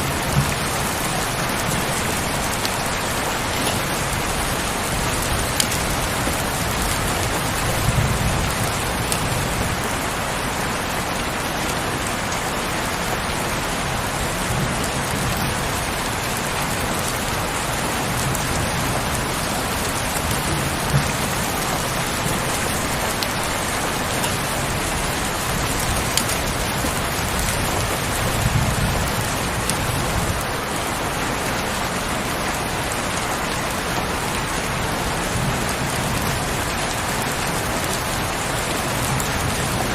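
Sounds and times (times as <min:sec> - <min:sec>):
heavy rain falling: 0:00.0 - 0:39.9
raindrop ticks: 0:00.1 - 0:10.0, 0:14.3 - 0:30.5.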